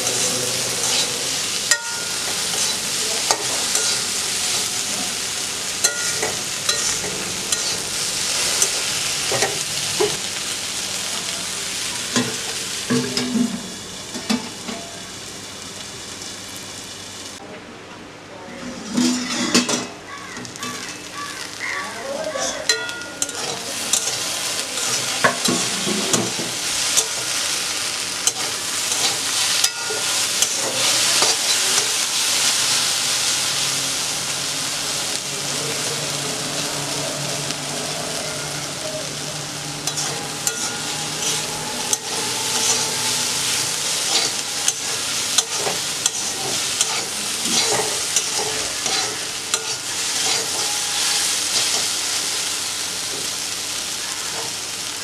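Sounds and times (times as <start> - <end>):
metal spatula scraping wok: 0.0 - 5.2, 5.8 - 10.2, 18.6 - 19.9, 22.3 - 33.5, 36.3 - 52.8
okra sizzling in hot oil: 0.0 - 17.4, 18.8 - 55.0.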